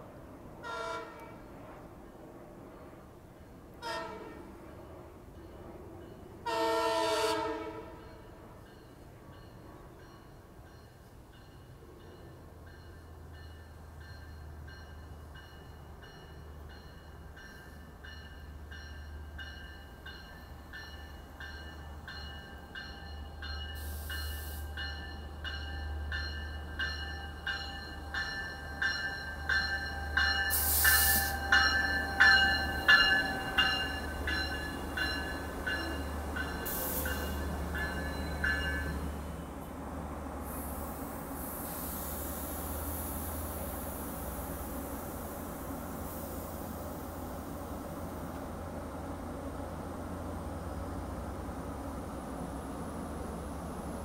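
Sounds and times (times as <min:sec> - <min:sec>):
train rumbling: 0:00.0 - 0:54.0
hiss bursts: 0:23.8 - 0:24.8, 0:30.5 - 0:31.4, 0:36.6 - 0:37.4, 0:40.4 - 0:46.8.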